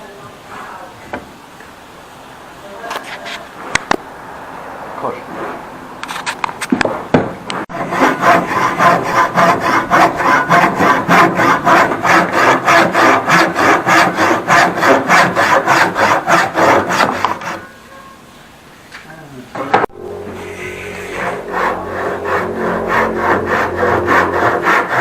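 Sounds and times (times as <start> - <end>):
handsaw cutting wood: 7.6 - 17.7, 20.3 - 25.0.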